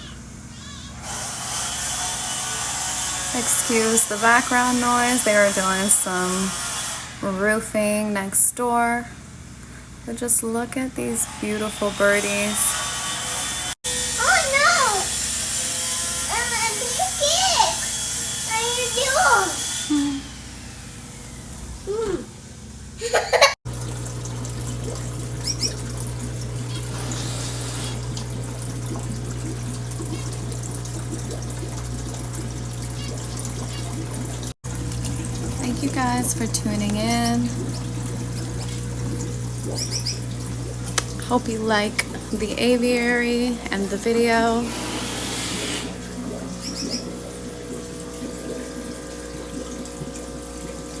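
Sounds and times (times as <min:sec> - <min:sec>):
trickling water: 0:03.3 - 0:06.2, 0:23.4 - 0:44.7, 0:45.8 - 0:51.0
constant low hum: 0:17.8 - 0:44.7, 0:45.9 - 0:51.0
finches chirping: 0:39.8 - 0:40.2, 0:46.6 - 0:47.1.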